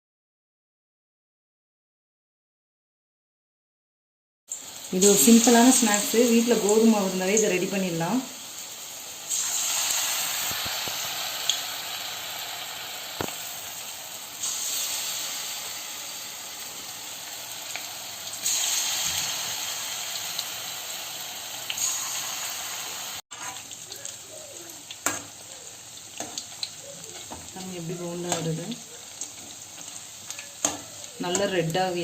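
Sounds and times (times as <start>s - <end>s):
batter sizzling in hot oil: 4.5s - 32.0s
small crackles of oil: 13.2s - 13.6s, 23.4s - 31.8s.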